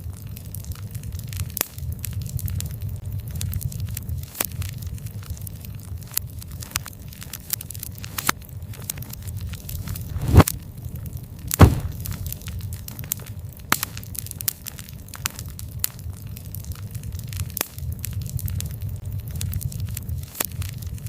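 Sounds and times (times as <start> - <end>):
campfire crackling: 0.0 - 21.0
low rumble of burning fire: 0.0 - 21.0
loud pops from fire: 8.0 - 21.0.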